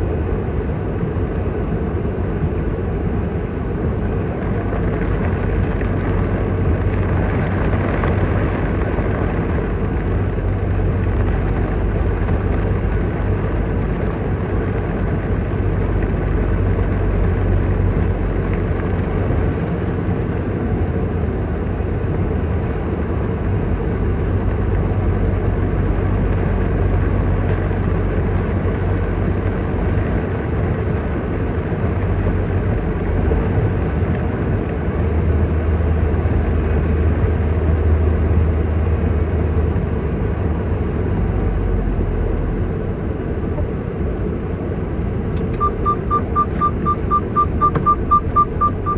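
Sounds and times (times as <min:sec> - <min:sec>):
heavy rain falling: 0:04.4 - 0:19.2.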